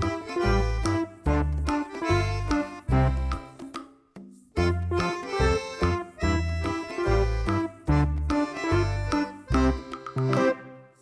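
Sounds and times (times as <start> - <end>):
upbeat accordion music: 0.0 - 3.8, 4.5 - 11.0.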